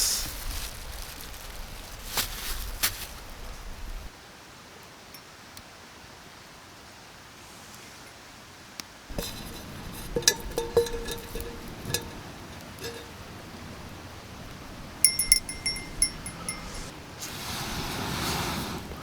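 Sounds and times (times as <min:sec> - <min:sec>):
metal cookware clinking: 0:09.1 - 0:16.9
soft rushing noise: 0:14.6 - 0:19.0.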